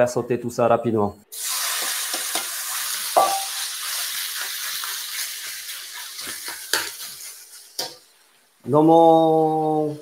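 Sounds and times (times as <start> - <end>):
chicken sizzling in wok: 1.3 - 8.6
spatula tapping wok: 3.2 - 3.5.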